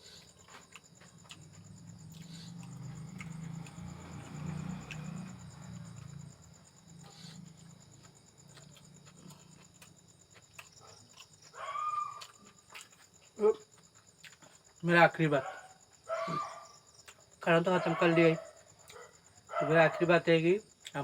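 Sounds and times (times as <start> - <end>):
person chewing and smacking: 0.0 - 6.0, 7.0 - 14.8
cricket chirr: 0.0 - 21.0.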